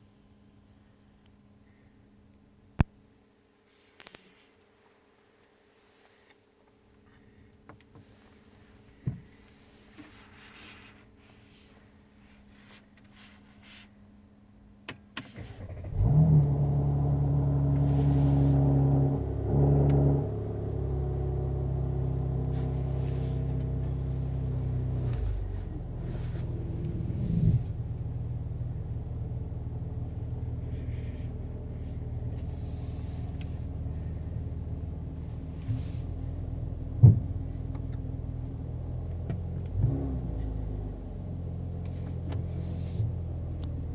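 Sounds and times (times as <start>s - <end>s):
car engine starting and idling: 14.9s - 43.9s.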